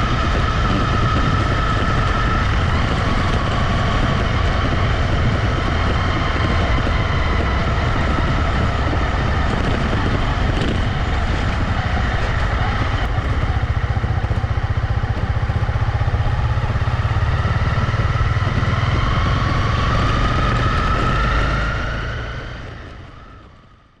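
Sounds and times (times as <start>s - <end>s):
motorcycle engine rumbling: 0.0s - 24.0s.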